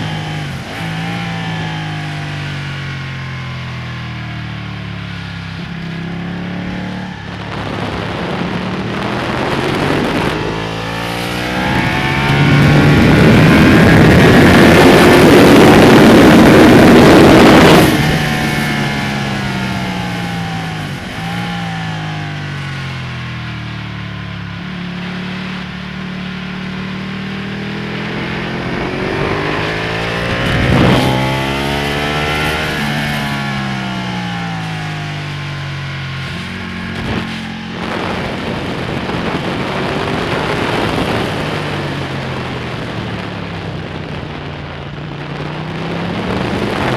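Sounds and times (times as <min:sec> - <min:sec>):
motorcycle engine revving: 0:00.0 - 0:46.9
wind rush: 0:05.6 - 0:23.4, 0:27.2 - 0:46.9.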